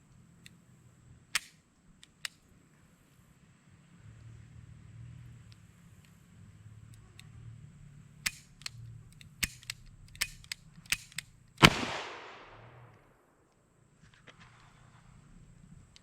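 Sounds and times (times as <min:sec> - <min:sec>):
quieter sharp cracks: 0:08.2 - 0:14.7
revolver shot with echo: 0:11.6 - 0:13.2.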